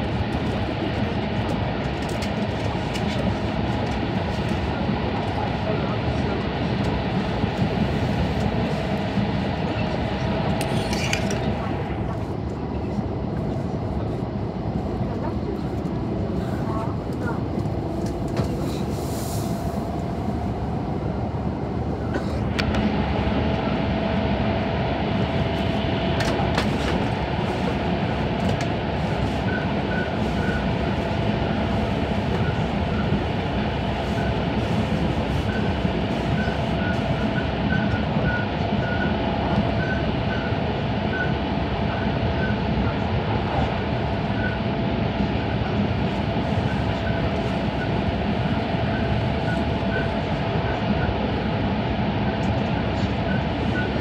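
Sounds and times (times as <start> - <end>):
rushing air: 18.5 - 22.6.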